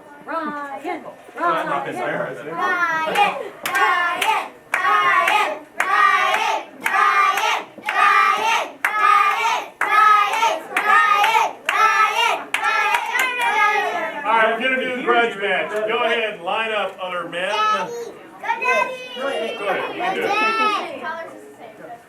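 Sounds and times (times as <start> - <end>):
children chanting: 2.7 - 14.2
hand claps: 3.1 - 13.6.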